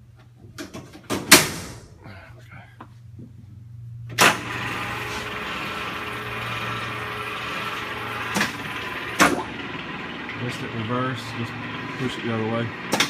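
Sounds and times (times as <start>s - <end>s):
drill press running with gear whine: 4.2s - 13.0s.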